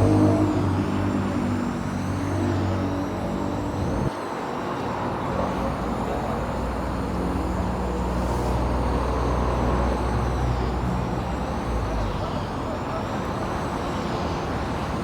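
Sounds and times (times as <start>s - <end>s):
road rush: 0.0s - 4.1s, 4.8s - 15.0s
vehicle engine humming: 0.0s - 4.1s.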